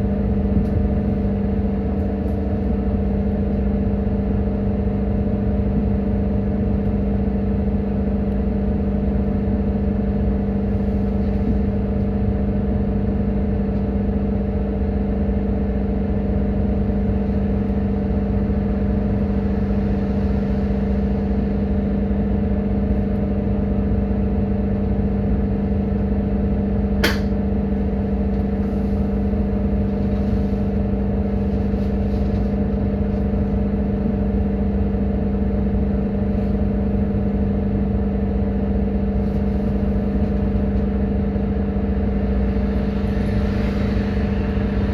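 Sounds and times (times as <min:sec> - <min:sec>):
bus engine rumble: 0:09.9 - 0:12.6, 0:16.9 - 0:23.2, 0:27.0 - 0:34.4, 0:39.1 - 0:44.9
sharp click: 0:27.0 - 0:27.3.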